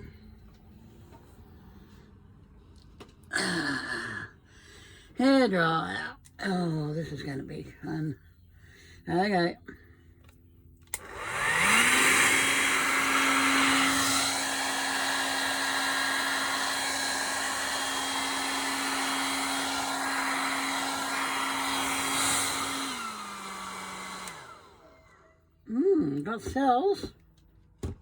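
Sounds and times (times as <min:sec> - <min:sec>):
hairdryer switch click: 0:10.9 - 0:11.7, 0:22.7 - 0:24.5
hairdryer motor hum: 0:10.9 - 0:25.3.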